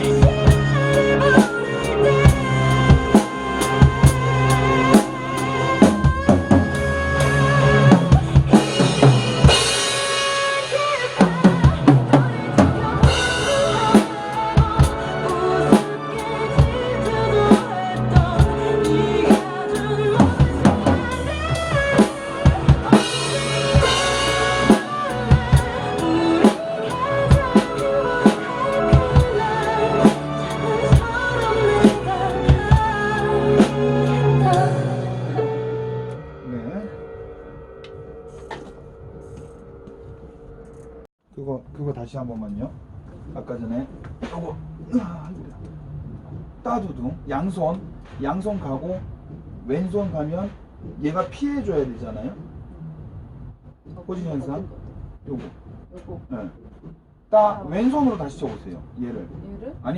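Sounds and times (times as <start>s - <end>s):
pop ballad backing track: 0.0s - 40.1s
drum kit playing: 0.0s - 41.1s
cymbal crashes: 7.9s - 16.0s, 21.1s - 33.0s, 36.2s - 41.0s.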